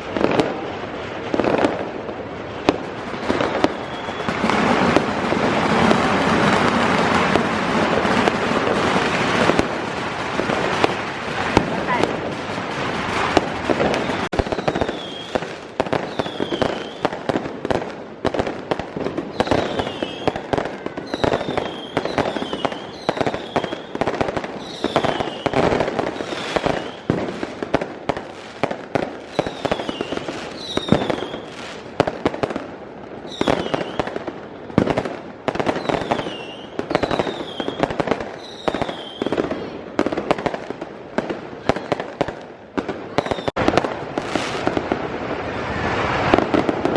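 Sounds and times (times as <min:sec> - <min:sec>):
fireworks bangs and crackles: 0:00.0 - 0:46.9
falling firework whistles: 0:03.1 - 0:07.4, 0:13.0 - 0:17.4, 0:19.2 - 0:27.5, 0:29.2 - 0:31.8, 0:33.2 - 0:34.9, 0:35.6 - 0:39.5, 0:43.1 - 0:46.9.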